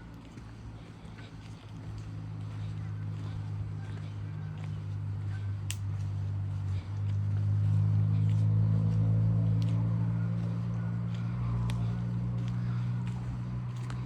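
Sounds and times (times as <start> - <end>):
low engine-like hum: 0.0 - 14.0
faint sharp clicks: 5.7 - 6.0.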